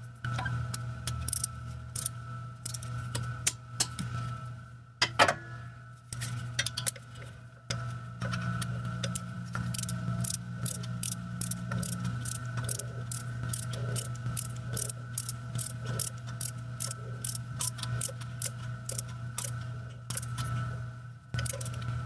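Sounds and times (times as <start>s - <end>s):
ratchet wrench clicking: 1.3s - 2.9s, 9.0s - 19.5s, 20.1s - 20.4s, 21.4s - 21.8s.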